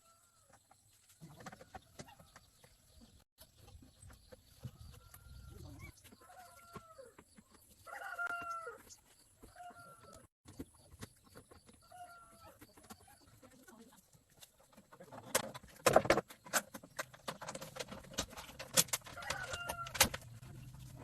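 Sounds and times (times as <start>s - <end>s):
chickens clucking: 1.1s - 7.7s.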